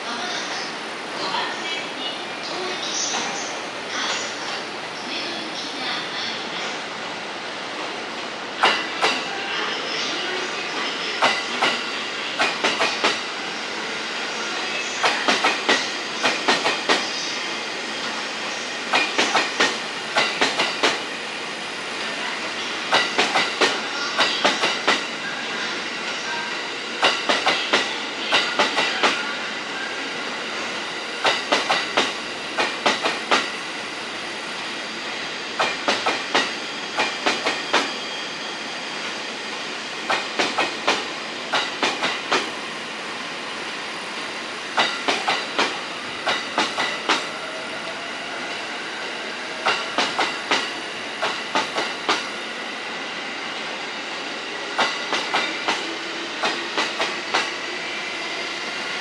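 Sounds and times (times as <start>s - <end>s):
train running rumble: 14.8s - 17.3s, 21.8s - 25.1s, 40.0s - 42.7s, 44.7s - 48.3s, 49.6s - 52.4s.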